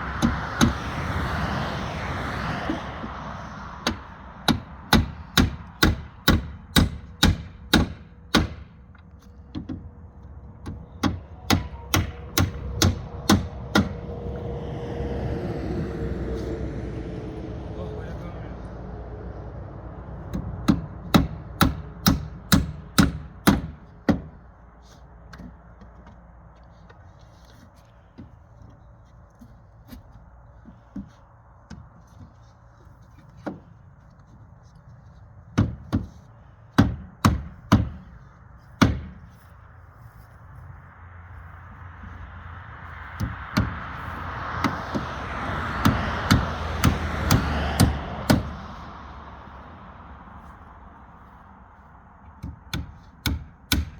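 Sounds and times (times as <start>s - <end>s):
hammer striking wood: 0.2s - 0.8s, 3.8s - 8.8s, 10.6s - 14.0s, 20.3s - 24.4s, 35.5s - 38.1s, 38.8s - 39.3s, 43.2s - 43.8s, 45.8s - 48.6s, 52.4s - 53.9s.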